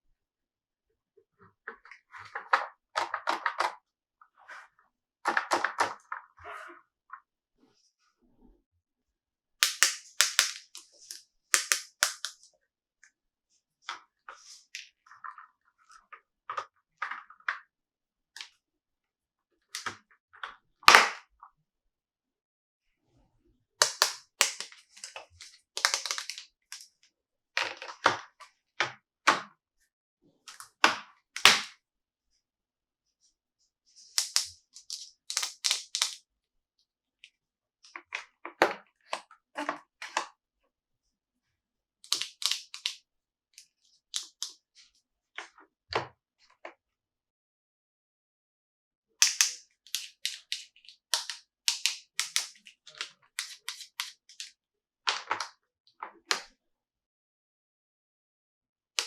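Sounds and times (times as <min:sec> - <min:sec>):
plastic toy clicks and taps: 0:09.6 - 0:10.8, 0:11.6 - 0:12.4, 0:23.8 - 0:24.7, 0:25.8 - 0:26.4, 0:34.2 - 0:36.2, 0:49.2 - 0:52.6.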